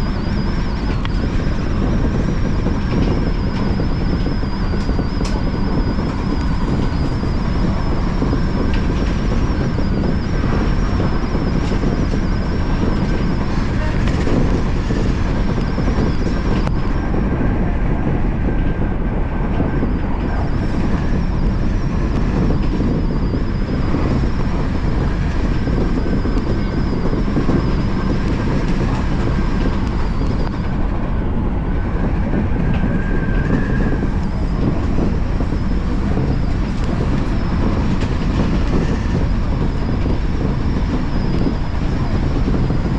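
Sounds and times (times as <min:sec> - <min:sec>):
thin high whine: 0:00.0 - 0:42.9
train wheels rumbling on rail: 0:00.0 - 0:42.9.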